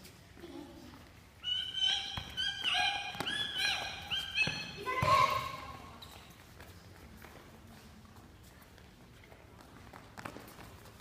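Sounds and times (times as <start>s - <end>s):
children calling and shouting: 1.4s - 5.9s.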